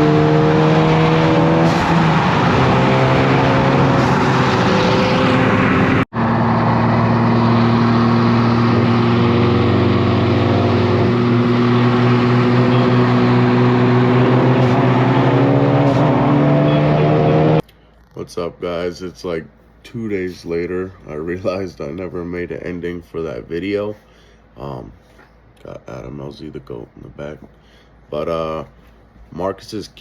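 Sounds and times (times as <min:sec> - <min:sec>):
car engine running under load: 0:00.0 - 0:17.6.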